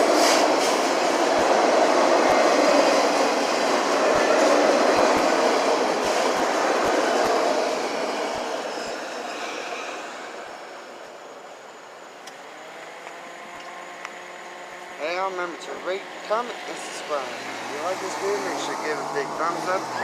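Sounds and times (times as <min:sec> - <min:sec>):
freight train cars rolling past: 0:00.0 - 0:11.2.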